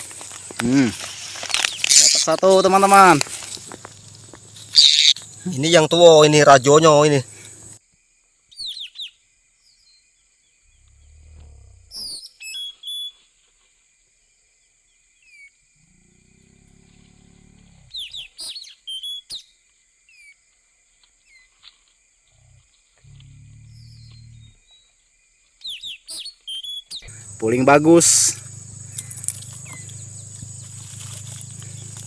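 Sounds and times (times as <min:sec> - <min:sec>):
high insect drone: 0:00.0 - 0:08.5, 0:09.3 - 0:12.1, 0:13.8 - 0:18.6, 0:26.9 - 0:32.0
parrot squawking: 0:04.7 - 0:05.2
low rumbles of noise: 0:27.0 - 0:32.0.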